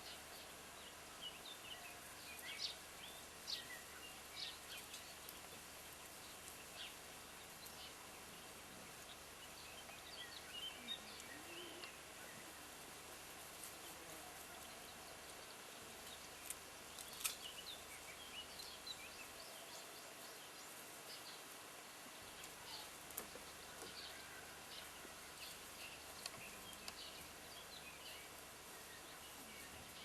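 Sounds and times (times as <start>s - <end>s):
background hiss: 0.0s - 30.0s.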